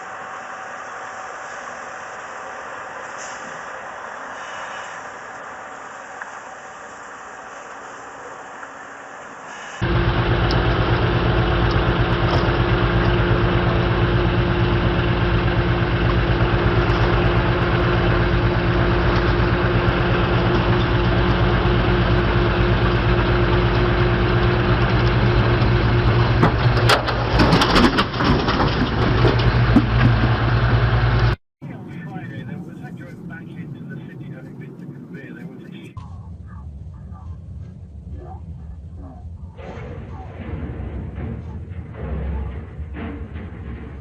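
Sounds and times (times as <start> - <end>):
heavy vehicle engine running: 0.0 - 44.0
crashing and clattering: 26.3 - 30.5, 39.6 - 44.0.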